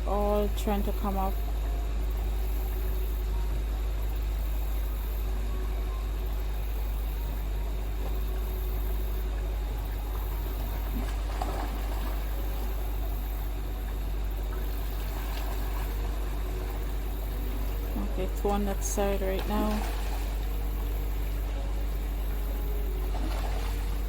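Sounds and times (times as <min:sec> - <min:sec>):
fast-flowing stream water: 0:00.0 - 0:24.0.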